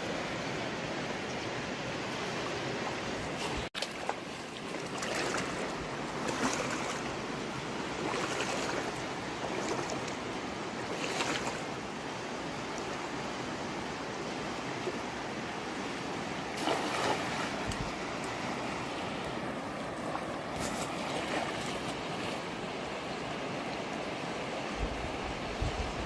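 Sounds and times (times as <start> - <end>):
fast-flowing river rushing: 0.0 - 26.0.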